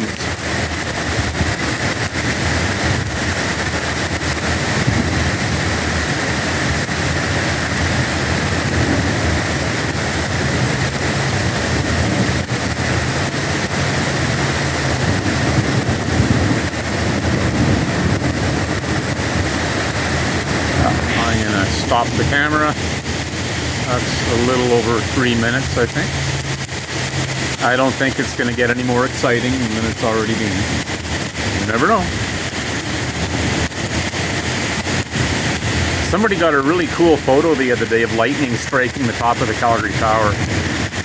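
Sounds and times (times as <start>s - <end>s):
heavy rain pouring: 0.0s - 41.0s.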